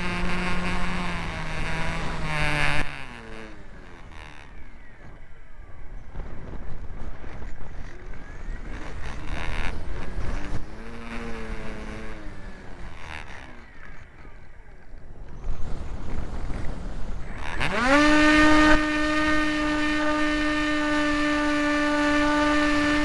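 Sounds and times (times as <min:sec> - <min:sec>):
model plane motor whining: 0:00.0 - 0:04.9, 0:07.9 - 0:14.8, 0:17.3 - 0:23.0
wind rumble on microphone: 0:00.0 - 0:23.0.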